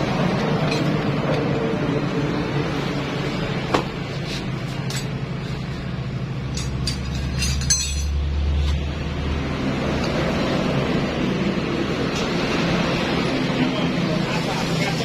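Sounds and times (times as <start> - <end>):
metal tools clinking: 4.8 - 5.6, 6.4 - 8.2.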